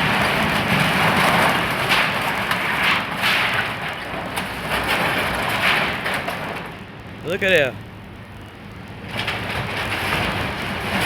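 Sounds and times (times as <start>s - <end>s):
building demolition crunching: 0.0s - 6.8s, 9.0s - 11.0s.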